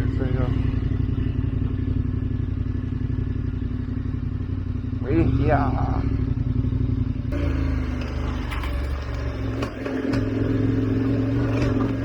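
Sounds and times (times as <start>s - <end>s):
motorcycle engine running: 0.0s - 12.0s
knocks and clatter from bike: 7.4s - 12.0s.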